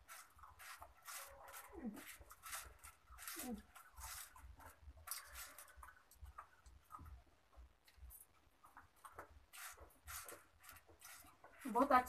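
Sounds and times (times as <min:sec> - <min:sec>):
crunchy snack being chewed: 0:00.1 - 0:07.2.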